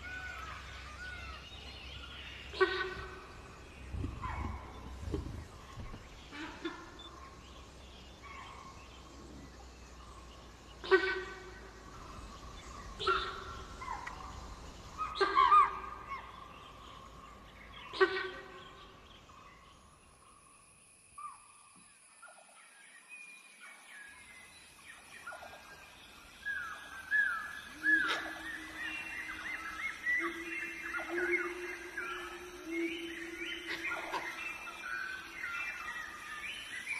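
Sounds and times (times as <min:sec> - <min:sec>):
birds calling in gliding notes: 0:00.0 - 0:36.9.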